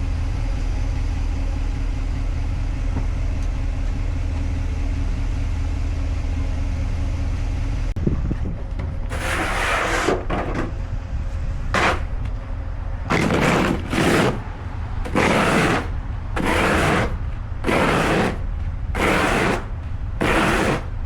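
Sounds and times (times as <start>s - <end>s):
engine rumble: 0.0s - 21.0s
rhythmic scraping strokes: 13.1s - 21.0s.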